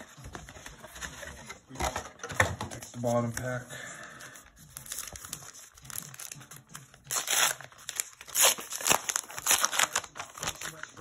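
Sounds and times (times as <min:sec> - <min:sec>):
wrapper tearing and crinkling: 0:04.8 - 0:11.0.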